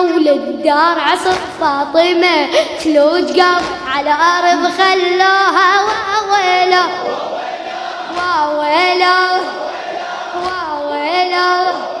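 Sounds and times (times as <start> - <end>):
chorus voices: 1.1 - 12.0
chanted vocals: 3.6 - 12.0.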